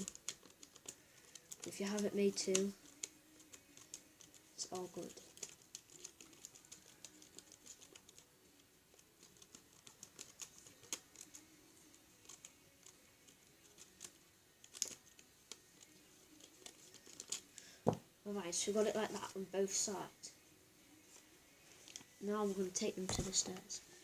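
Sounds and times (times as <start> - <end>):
scissors snipping paper: 0.0 - 17.5.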